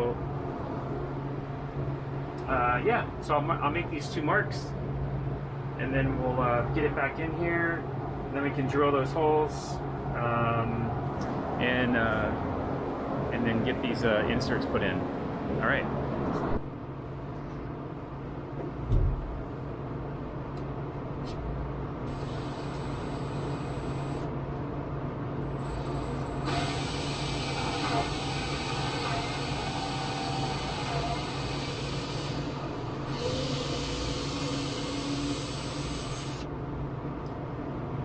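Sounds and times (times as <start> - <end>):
steady background hum: 0.0 - 38.0
power drill whining: 22.1 - 24.3, 25.6 - 36.5.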